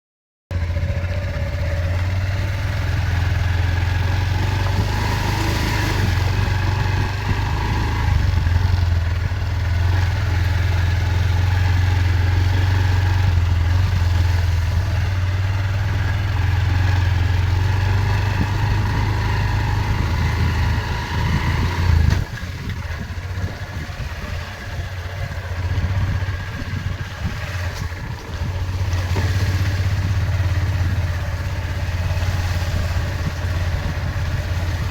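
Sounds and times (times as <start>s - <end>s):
vehicle engine low hum: 0.5s - 34.9s.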